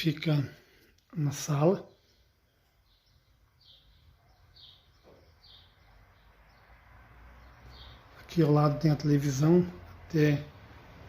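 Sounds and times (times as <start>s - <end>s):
faint high bird chirps: 1.1s - 8.8s.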